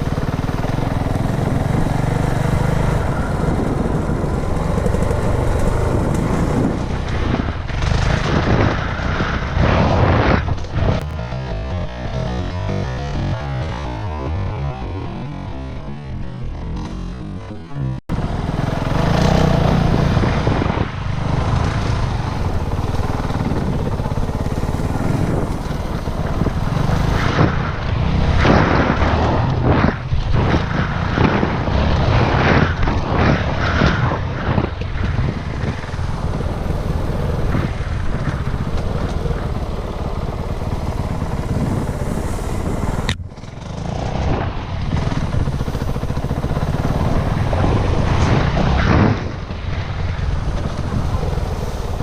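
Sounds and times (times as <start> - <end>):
dirt bike engine running: 0.0 - 52.0
wind buffeting microphone: 0.0 - 52.0.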